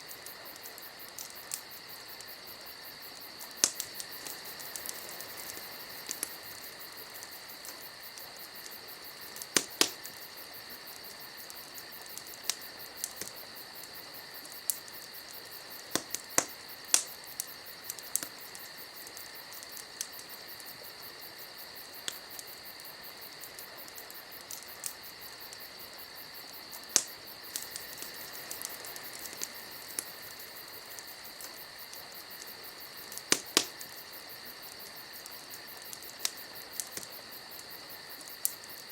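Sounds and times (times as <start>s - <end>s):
wood fire crackling: 0.0s - 38.9s
sharp pops: 33.3s - 33.8s.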